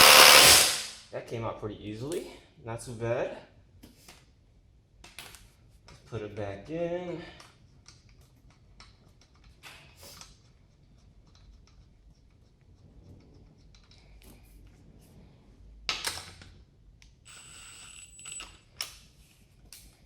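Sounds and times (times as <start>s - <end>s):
impact driver bursts: 0.0s - 1.0s.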